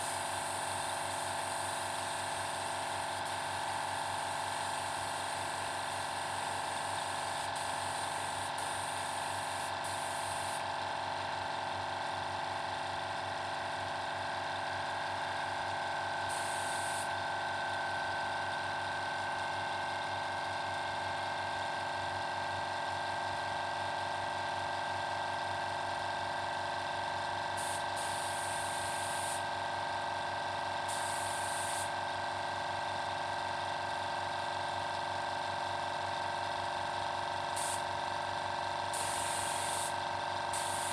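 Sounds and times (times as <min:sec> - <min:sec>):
spray gun hissing: 0:00.0 - 0:03.7, 0:06.8 - 0:10.6, 0:16.3 - 0:17.1, 0:27.6 - 0:29.4, 0:30.9 - 0:31.9, 0:37.6 - 0:37.8, 0:38.9 - 0:40.9
air compressor running: 0:00.0 - 0:40.9.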